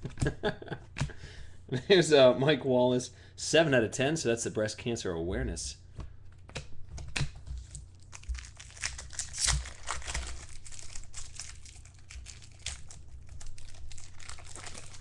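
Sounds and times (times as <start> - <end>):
wrapper being torn and crinkling: 7.6 - 15.0.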